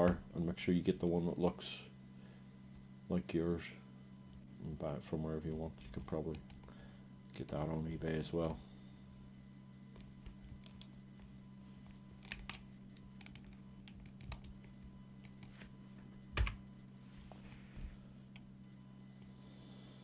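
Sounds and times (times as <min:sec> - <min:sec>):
low hum: 0:00.0 - 0:20.0
typing on computer keyboard: 0:13.2 - 0:14.6.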